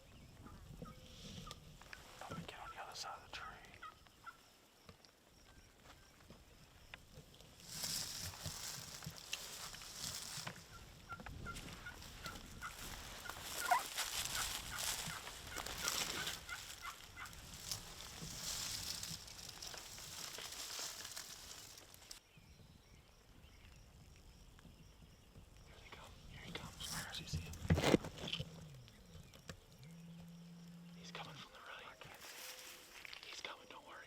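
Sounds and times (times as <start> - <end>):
wild turkey gobbling: 3.8 - 4.4, 9.4 - 21.2
wind noise on microphone: 10.6 - 18.9.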